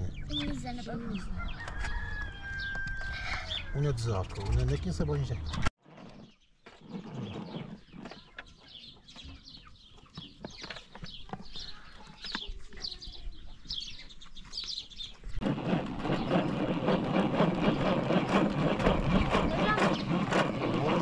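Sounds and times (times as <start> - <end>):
birds chirping: 0.0 - 21.0
loud dense rattling: 15.4 - 21.0.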